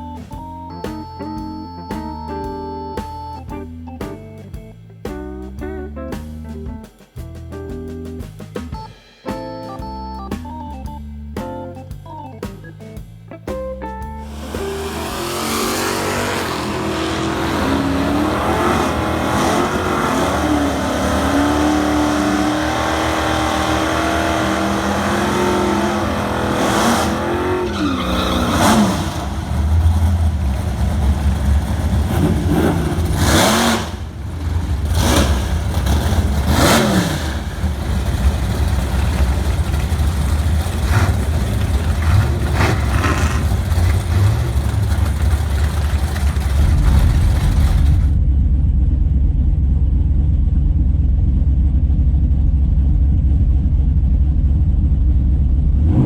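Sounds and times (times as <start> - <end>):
drag car engine running loud: 14.2 - 56.0.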